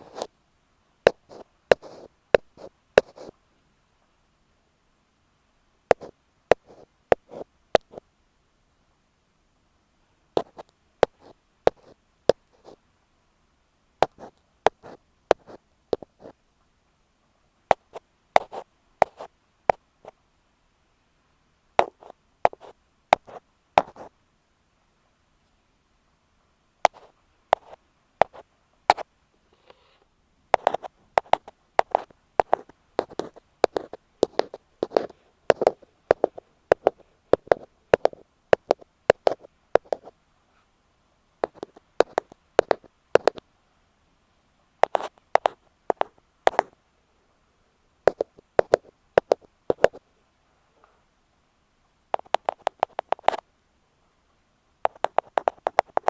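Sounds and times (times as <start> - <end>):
ear pick tapping on microphone: 1.1 - 3.3, 5.9 - 8.0, 10.4 - 12.8, 14.0 - 16.3, 17.7 - 19.8, 21.8 - 24.1, 26.8 - 29.0, 30.6 - 40.1, 41.4 - 43.4, 44.8 - 46.8, 48.1 - 50.0, 52.2 - 53.4, 54.8 - 56.0.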